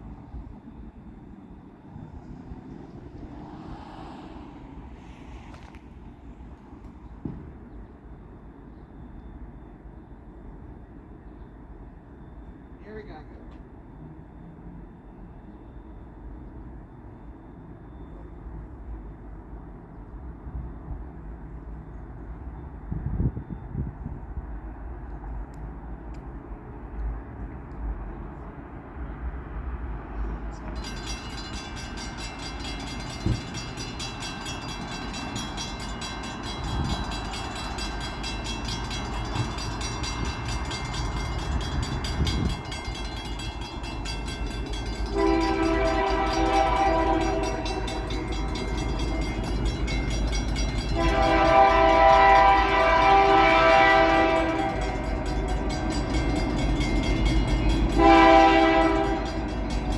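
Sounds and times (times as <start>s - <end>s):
freight train rumble: 0.0s - 59.9s
train horn blasts: 44.9s - 49.5s, 50.7s - 59.7s.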